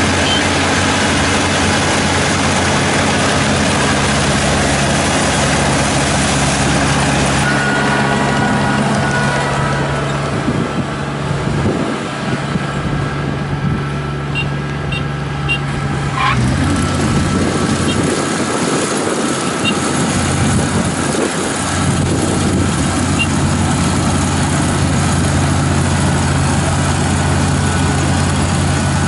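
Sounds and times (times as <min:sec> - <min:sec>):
combine harvester running: 0:00.0 - 0:29.0
short faint beeps: 0:00.2 - 0:00.4.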